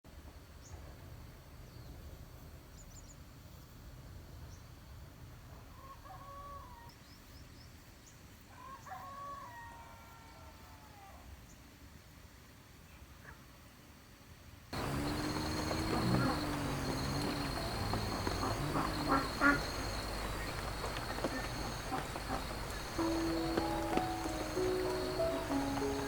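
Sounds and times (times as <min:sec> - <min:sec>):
low outdoor rumble: 0:14.8 - 0:26.0
small birds chirping: 0:14.8 - 0:26.0.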